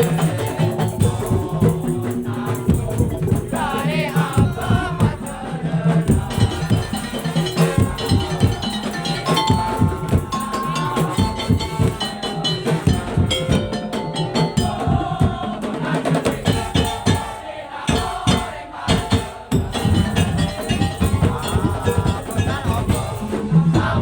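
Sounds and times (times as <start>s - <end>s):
percussion ensemble playing: 0.0s - 24.0s
wood-block knocks: 6.1s - 24.0s
wavering melody line: 7.2s - 15.2s.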